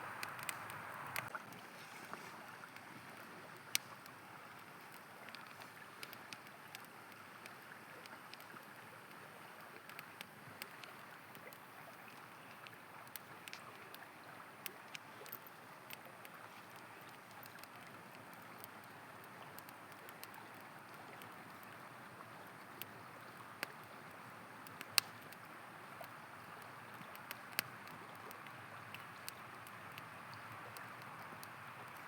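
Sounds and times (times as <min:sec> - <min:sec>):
campfire crackling: 0:00.0 - 0:32.0
river flowing: 0:00.0 - 0:32.0.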